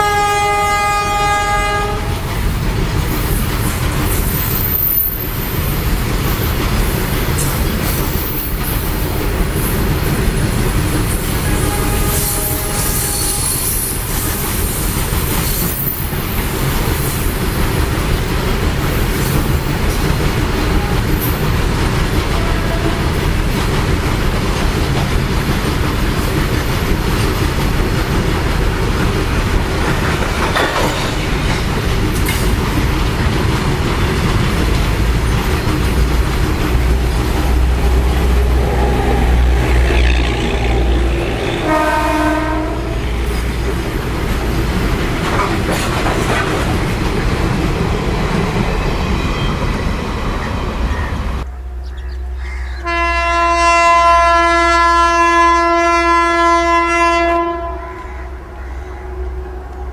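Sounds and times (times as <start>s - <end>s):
locomotive horn: 0.0s - 2.4s, 11.4s - 14.9s, 22.3s - 23.3s, 37.0s - 43.4s, 52.8s - 58.6s
freight train rumbling past: 0.0s - 59.9s
wagons clattering on rails: 2.4s - 38.9s, 43.2s - 48.7s.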